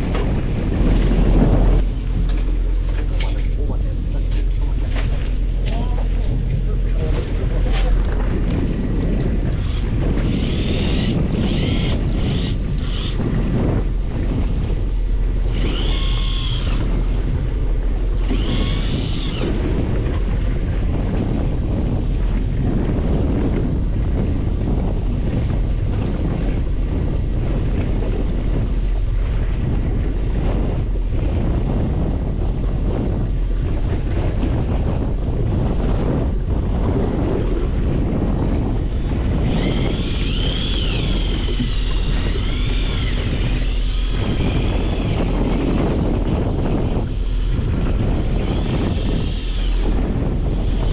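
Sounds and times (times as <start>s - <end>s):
boat engine rumble: 0.0s - 50.9s
wind buffeting microphone: 0.0s - 50.9s
high wavering whine: 14.6s - 19.6s, 39.4s - 46.0s.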